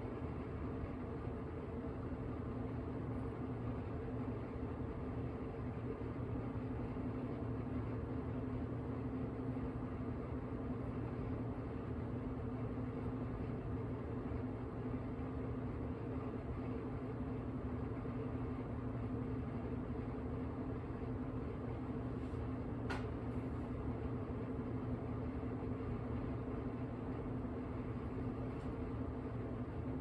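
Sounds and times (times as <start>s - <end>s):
washing machine motor hum: 0.0s - 30.0s.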